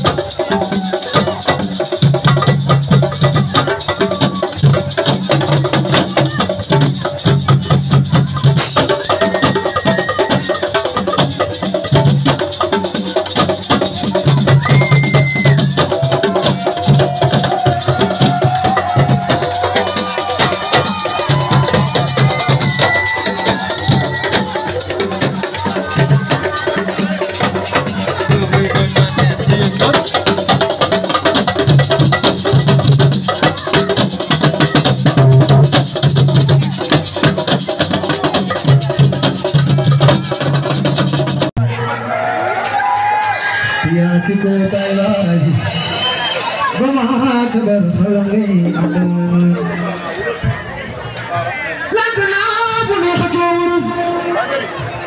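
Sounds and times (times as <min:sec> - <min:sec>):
shaker rattling: 0:00.0 - 0:41.3
hand percussion: 0:00.0 - 0:41.6.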